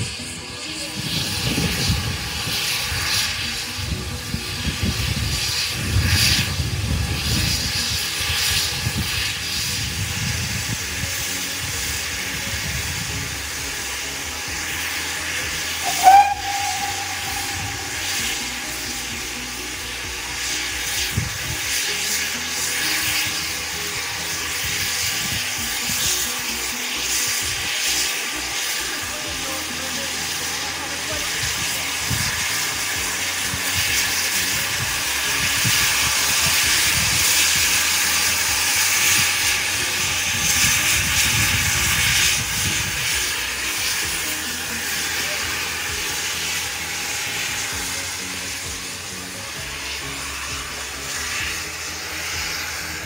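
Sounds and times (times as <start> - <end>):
steam locomotive hissing: 0.0 - 53.0
locomotive whistle toot: 15.6 - 19.7
low rumble: 15.8 - 21.5.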